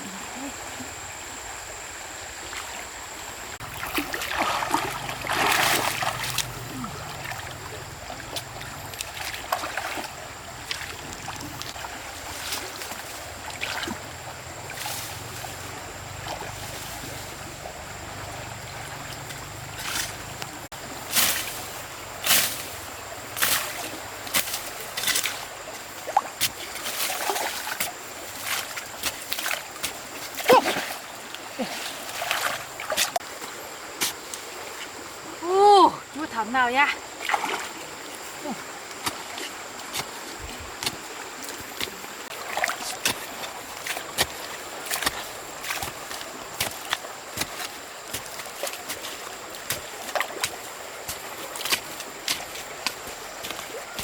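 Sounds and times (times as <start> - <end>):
stream water running: 0.0 - 54.0
water splashing: 3.5 - 54.0
short sharp splashes: 3.6 - 10.1.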